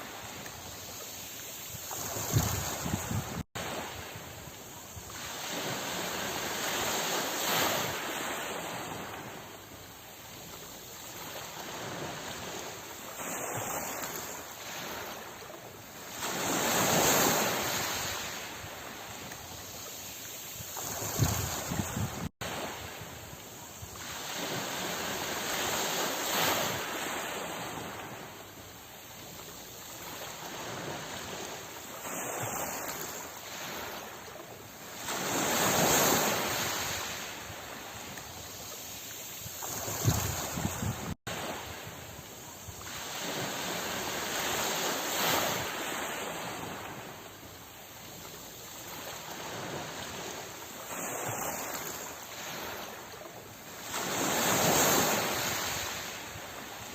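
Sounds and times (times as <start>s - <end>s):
ocean waves washing ashore: 0.0s - 56.9s.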